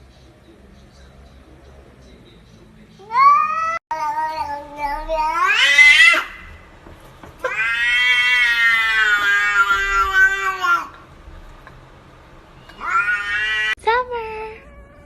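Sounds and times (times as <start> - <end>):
cat yowling: 3.0 - 6.6, 7.4 - 11.0, 12.6 - 13.8, 14.4 - 15.0.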